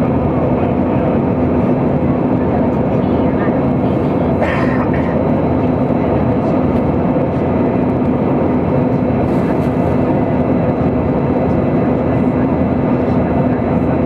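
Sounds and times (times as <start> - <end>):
airplane cabin engine noise: 0.0 - 14.0.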